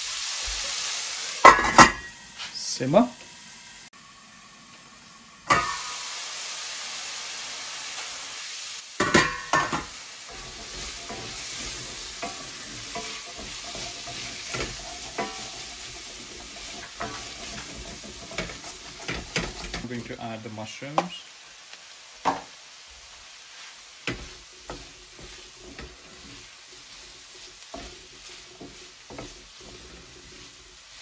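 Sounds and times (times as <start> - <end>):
vegetables sizzling in oil: 0.0 - 31.0
utensil scraping and knocking on pan: 1.4 - 2.1, 9.0 - 19.9, 22.2 - 22.5, 24.0 - 31.0
loud clatter against pan: 9.0 - 11.2, 12.2 - 19.9.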